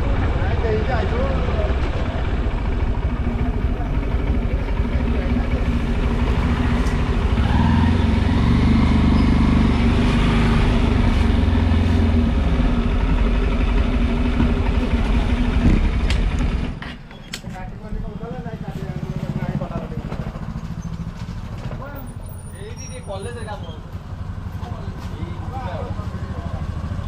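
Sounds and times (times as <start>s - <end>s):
motorcycle engine running: 0.0s - 16.8s, 17.7s - 27.0s
wind and road noise: 0.0s - 27.0s.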